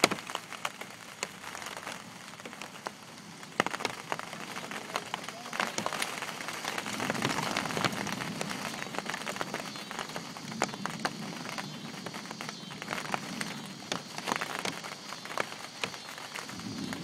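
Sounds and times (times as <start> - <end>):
heavy rain on a greenhouse roof: 0.0 - 17.0.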